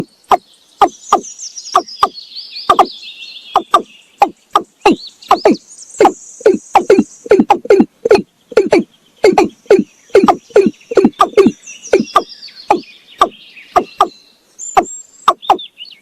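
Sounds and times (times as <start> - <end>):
bird calling hollow notes: 0.0 - 3.0, 3.6 - 15.7
high chirping trills: 0.0 - 16.0.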